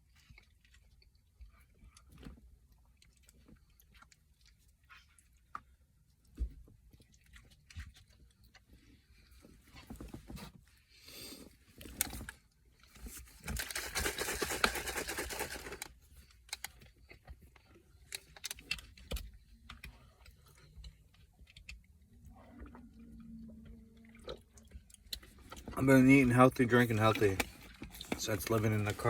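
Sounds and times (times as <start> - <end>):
snack wrapper crinkling: 13.4 - 15.9.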